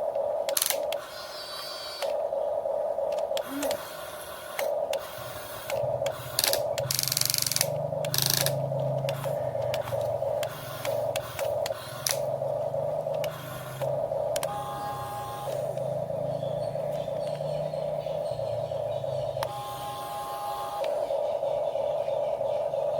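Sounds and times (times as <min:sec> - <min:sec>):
hissing bursts: 0:00.5 - 0:16.4
electric motors whirring: 0:00.5 - 0:22.9
clicks: 0:13.0 - 0:14.6.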